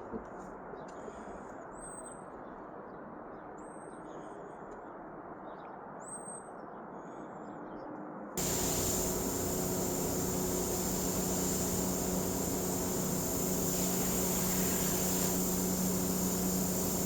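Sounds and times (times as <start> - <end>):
loud machine noise: 8.4 - 17.0
low background rumble: 8.4 - 17.0
small birds chirping: 8.4 - 17.0.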